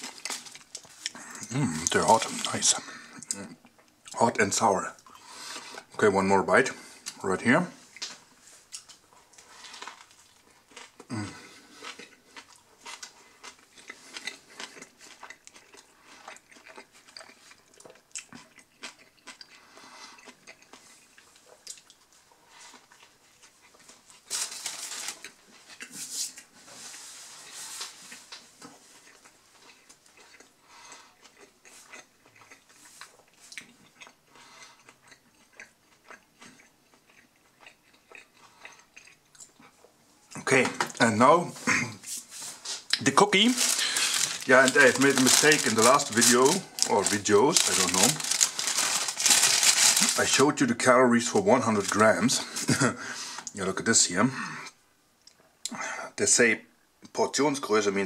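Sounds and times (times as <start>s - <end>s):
crackling rustles: 0.0s - 2.8s, 7.8s - 11.0s, 20.7s - 31.1s, 41.0s - 53.5s
person chewing food: 0.0s - 4.2s, 5.0s - 5.9s, 7.8s - 41.0s, 41.8s - 50.2s.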